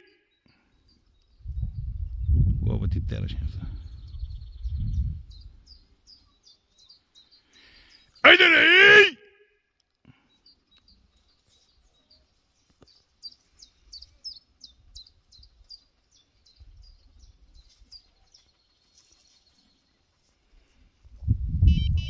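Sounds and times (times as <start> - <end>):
small bird singing: 0.0 - 2.6, 3.4 - 8.3, 10.1 - 21.1.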